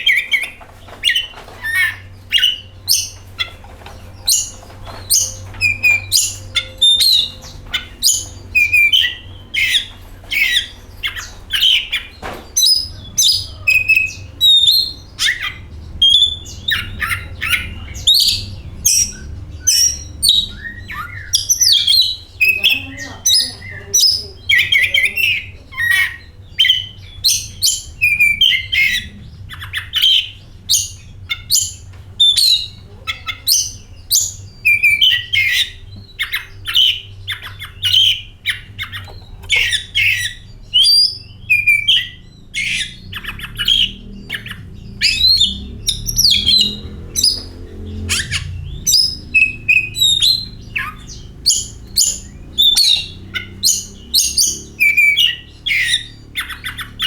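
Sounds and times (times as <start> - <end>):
magpie-robin singing: 0.0 - 57.0
faint low rumble: 0.6 - 57.0.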